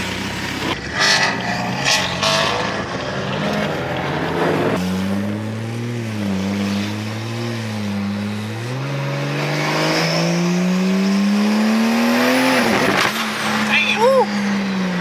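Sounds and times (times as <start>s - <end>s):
driver talking: 13.6s - 14.6s.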